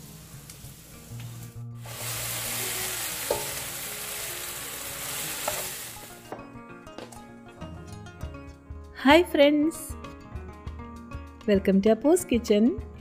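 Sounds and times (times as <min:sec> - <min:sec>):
food sizzling in hot oil: 0:00.0 - 0:06.2.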